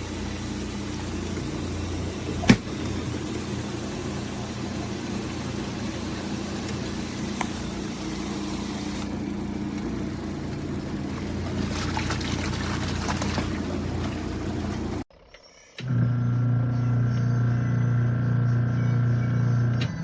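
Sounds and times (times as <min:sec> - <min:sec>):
washing machine motor hum: 0:00.0 - 0:15.0, 0:15.8 - 0:20.0
water swishing and trickling: 0:09.2 - 0:15.0.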